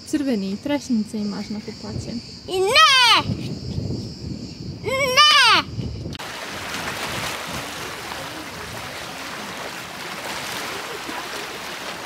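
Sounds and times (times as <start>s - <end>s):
sea water washing on shore: 6.2s - 12.0s
faint distant voices: 7.2s - 12.0s.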